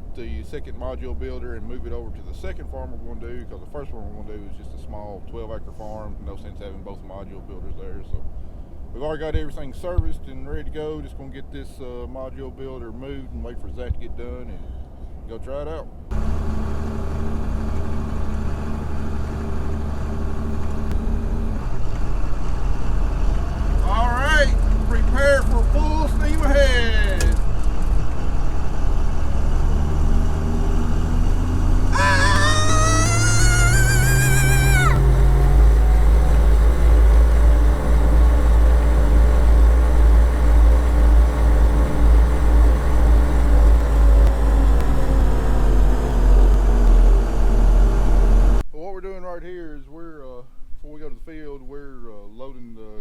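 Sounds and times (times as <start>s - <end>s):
tractor engine humming: 16.1s - 27.5s, 30.2s - 48.6s.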